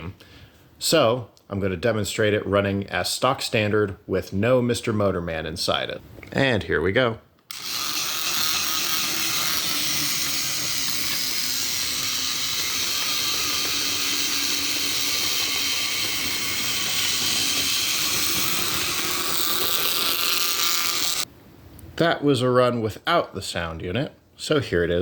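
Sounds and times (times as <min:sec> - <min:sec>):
toy train motor whirring: 0:07.5 - 0:21.3.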